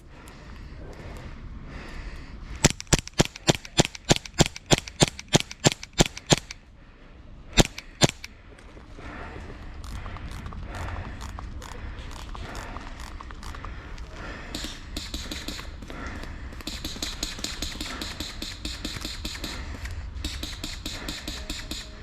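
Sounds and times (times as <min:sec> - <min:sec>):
airsoft pistol shots: 0:02.6 - 0:06.6, 0:07.6 - 0:08.3, 0:16.7 - 0:22.0.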